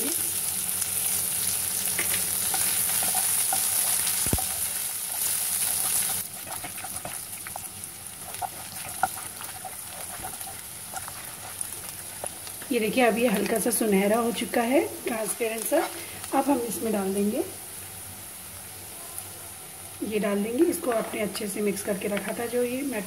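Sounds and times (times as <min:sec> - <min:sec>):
food sizzling in hot oil: 0:00.0 - 0:23.0
wooden spatula scraping pan: 0:08.2 - 0:12.6.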